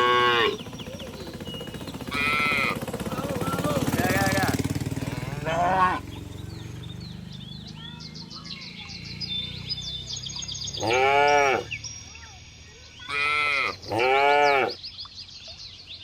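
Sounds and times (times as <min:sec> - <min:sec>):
cattle mooing: 0:00.0 - 0:00.6, 0:02.1 - 0:02.8, 0:04.1 - 0:06.1, 0:10.8 - 0:11.7, 0:13.1 - 0:14.8
small birds chirping: 0:00.0 - 0:16.0.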